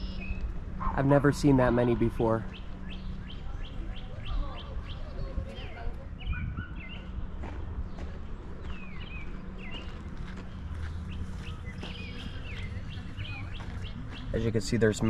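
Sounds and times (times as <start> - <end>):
songbirds chirping: 0.0 - 15.0
soft footsteps: 6.9 - 14.7.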